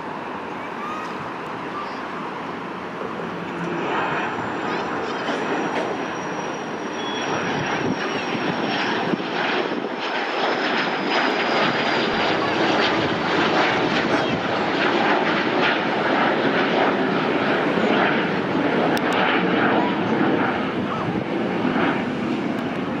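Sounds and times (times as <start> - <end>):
jet engine roar with whine: 0.0 - 23.0.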